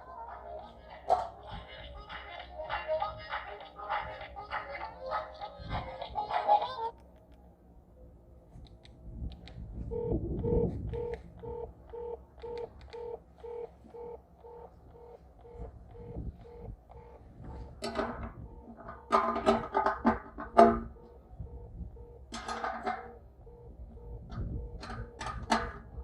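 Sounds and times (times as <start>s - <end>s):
electronic beeping pulses: 9.9s - 19.2s, 20.7s - 22.3s, 23.0s - 26.0s
ringing clattering bursts: 16.0s - 21.0s, 22.0s - 23.3s.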